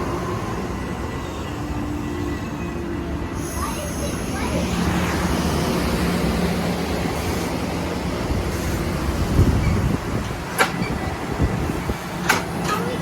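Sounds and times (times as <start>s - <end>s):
diesel locomotive rumble: 3.1s - 13.0s.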